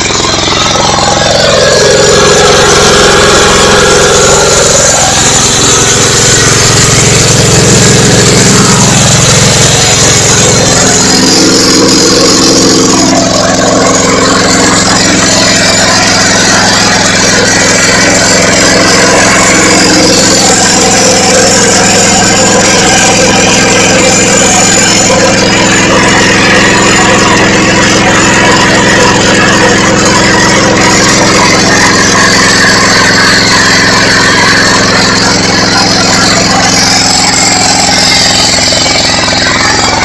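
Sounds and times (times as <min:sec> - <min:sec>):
diesel generator running: 0:00.0 - 0:40.0.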